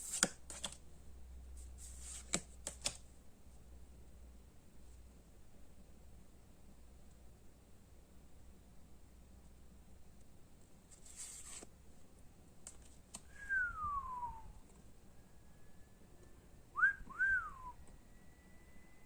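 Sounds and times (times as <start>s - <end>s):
person whistling: 13.3s - 14.6s, 16.8s - 18.7s.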